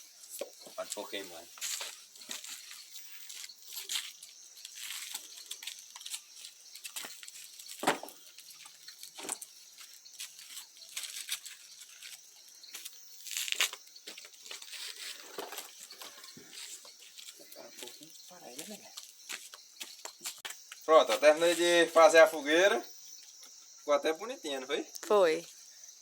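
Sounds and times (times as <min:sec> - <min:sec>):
branches rustling and crackling: 0:00.0 - 0:22.3
wood knocking: 0:07.8 - 0:08.2.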